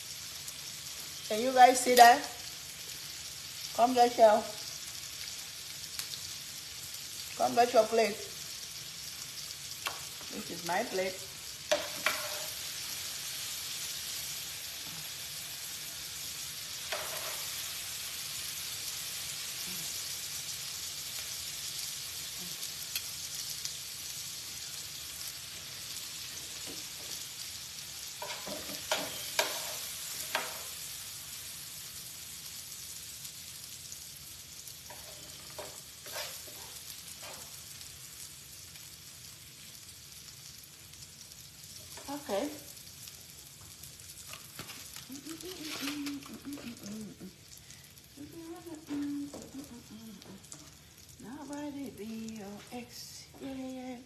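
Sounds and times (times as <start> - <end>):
vegetables sizzling in oil: 0.0 - 54.0
metal tongs clinking on a pan: 11.7 - 12.6, 16.8 - 17.6, 28.2 - 30.8.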